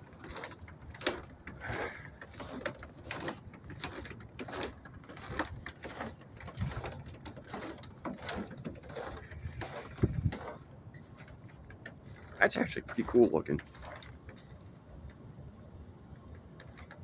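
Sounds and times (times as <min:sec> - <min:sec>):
wind buffeting microphone: 0:05.2 - 0:13.7.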